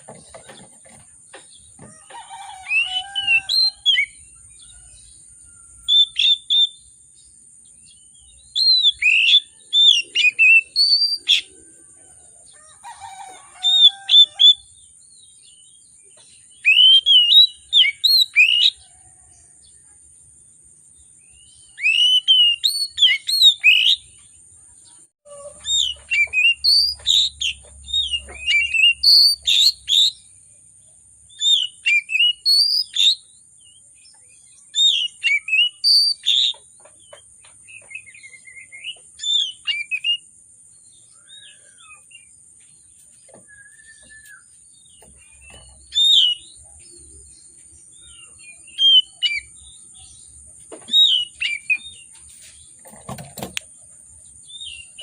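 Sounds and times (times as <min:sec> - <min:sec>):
bird singing whistled notes: 0:02.6 - 0:07.0, 0:07.8 - 0:11.7, 0:16.4 - 0:18.9, 0:21.3 - 0:24.1, 0:25.3 - 0:30.3, 0:31.3 - 0:36.6, 0:37.7 - 0:40.3, 0:43.3 - 0:50.3, 0:50.9 - 0:52.1.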